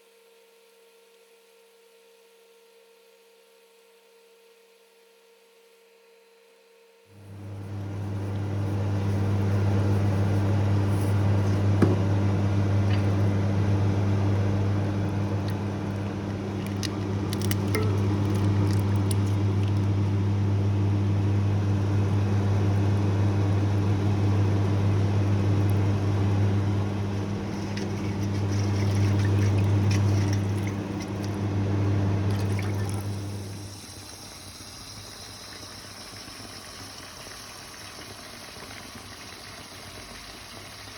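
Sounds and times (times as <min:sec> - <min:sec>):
electric hum: 0:07.2 - 0:34.1
water running: 0:07.3 - 0:40.9.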